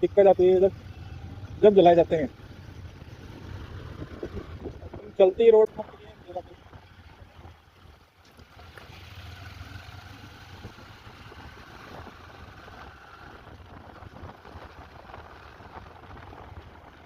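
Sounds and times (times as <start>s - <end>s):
motorcycle running: 0.0s - 17.0s
wind rush on microphone: 3.0s - 7.6s, 10.4s - 17.0s.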